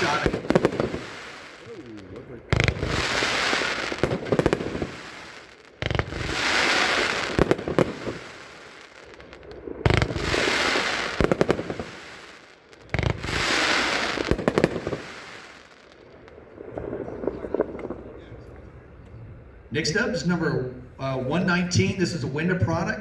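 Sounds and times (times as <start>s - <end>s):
firework crackling and hissing: 0.0s - 18.2s
firework shots: 0.0s - 18.4s.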